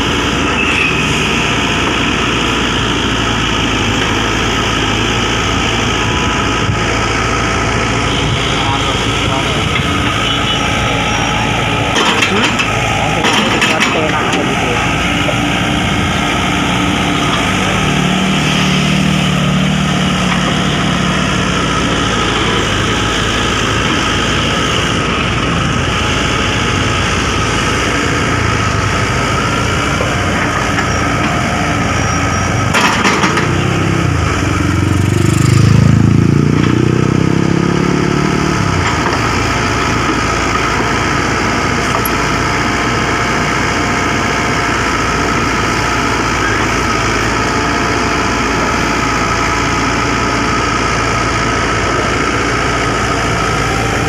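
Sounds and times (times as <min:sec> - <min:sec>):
diesel engine revving: 0:00.0 - 0:54.0
rattling clanks: 0:11.9 - 0:14.5.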